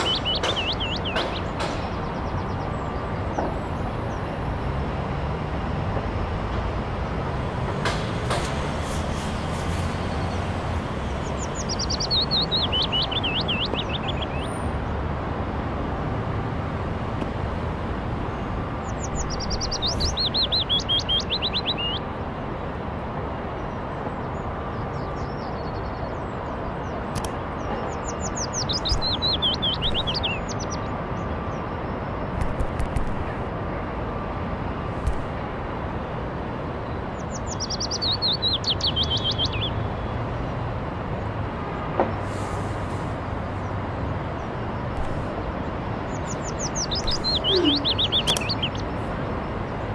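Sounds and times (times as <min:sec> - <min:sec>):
songbird singing: 0:00.0 - 0:04.3, 0:09.2 - 0:15.1, 0:18.2 - 0:22.2, 0:23.5 - 0:33.4, 0:36.8 - 0:42.3, 0:43.1 - 0:49.9
low outdoor ambient hum: 0:00.0 - 0:49.9.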